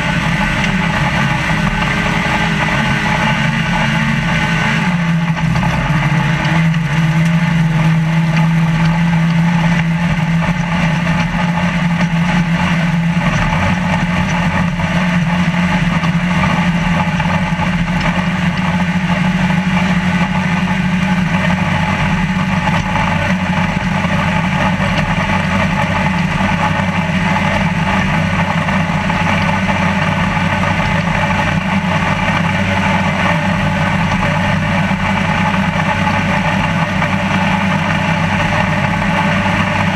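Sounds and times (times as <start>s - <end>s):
chassis and terrain noise: 0.0s - 39.9s
truck engine running: 0.0s - 39.9s.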